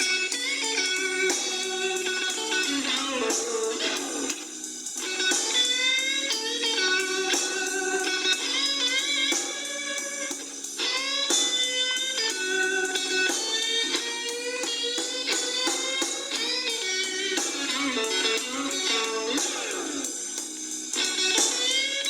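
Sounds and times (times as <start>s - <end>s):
electric blues guitar: 0.0s - 22.0s.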